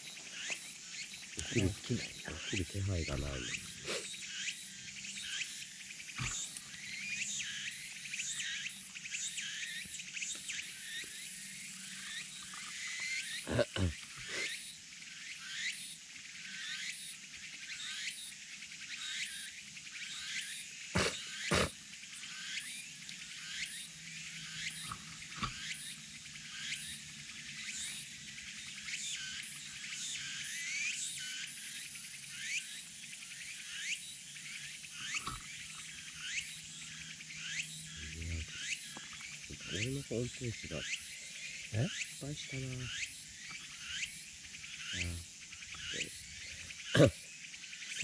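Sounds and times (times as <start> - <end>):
cicadas calling: 0.0 - 48.0.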